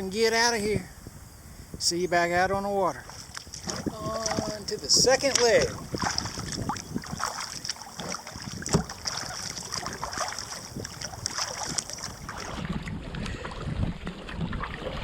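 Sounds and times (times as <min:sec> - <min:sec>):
wind buffeting microphone: 0:00.0 - 0:15.0
kayak paddle splashing: 0:03.0 - 0:15.0.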